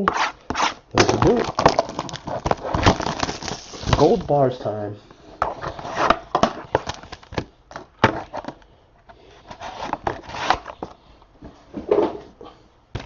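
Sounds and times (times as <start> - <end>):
packaging crackling and rustling: 1.0 - 4.3
packaging tearing: 1.2 - 4.2.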